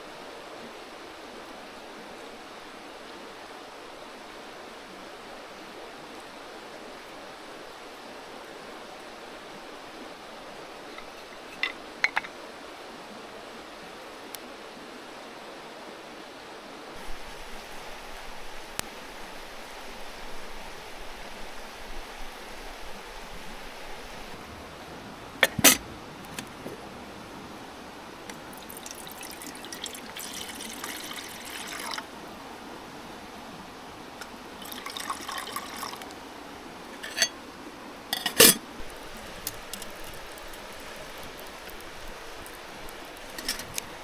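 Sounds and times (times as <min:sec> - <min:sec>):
babbling stream: 0:00.0 - 0:44.0
liquid pouring into vessel: 0:28.3 - 0:32.1, 0:34.2 - 0:36.2, 0:36.9 - 0:37.3, 0:38.2 - 0:43.9.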